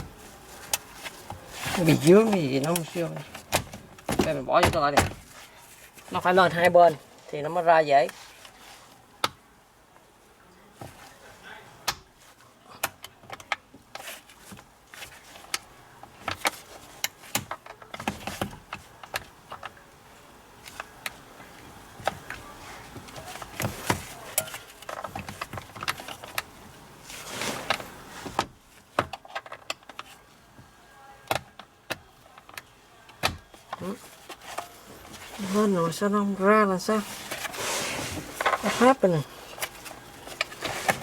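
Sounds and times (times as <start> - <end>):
scraping rustle: 0.0 - 4.5, 22.4 - 29.0, 33.8 - 41.0.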